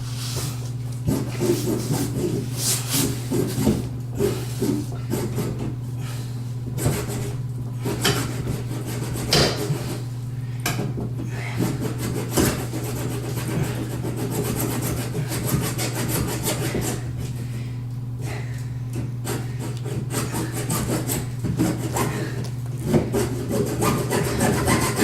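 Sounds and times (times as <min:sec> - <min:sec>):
handsaw cutting plastic: 0:01.0 - 0:05.8, 0:06.8 - 0:09.9, 0:10.9 - 0:17.3, 0:19.2 - 0:25.0.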